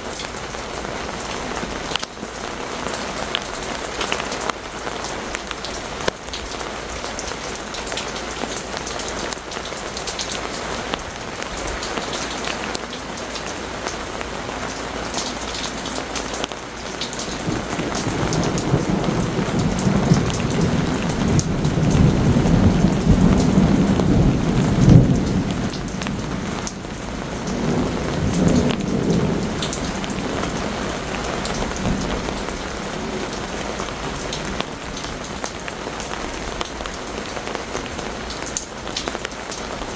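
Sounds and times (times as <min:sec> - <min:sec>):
heavy rain pattering: 0:00.0 - 0:39.9
rolling thunder rumble: 0:14.7 - 0:35.6.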